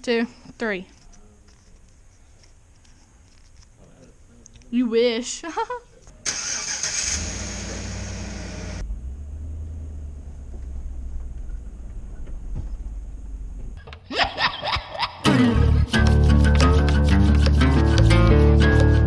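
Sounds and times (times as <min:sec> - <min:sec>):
vehicle engine idling: 0:06.3 - 0:13.8
loud music: 0:15.2 - 0:19.0.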